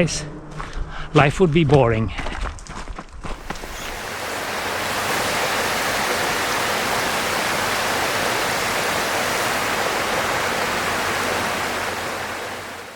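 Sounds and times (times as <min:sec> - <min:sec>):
waterfall rushing: 0:03.4 - 0:12.9.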